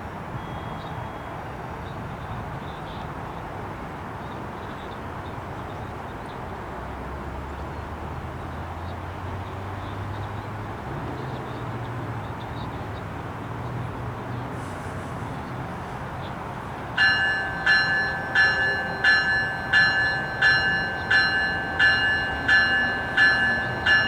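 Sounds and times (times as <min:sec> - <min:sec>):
diesel locomotive drone: 0:10.1 - 0:24.0.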